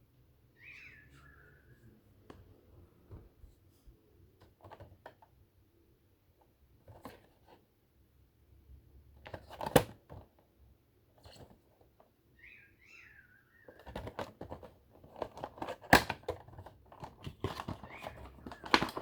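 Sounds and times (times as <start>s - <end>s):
handling rustles and clicks: 13.7s - 19.0s.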